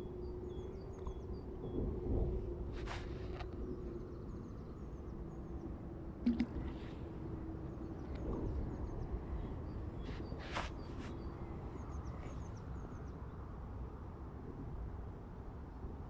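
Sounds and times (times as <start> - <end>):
low steady hum: 0.0 - 14.8
small birds chirping: 7.7 - 13.3.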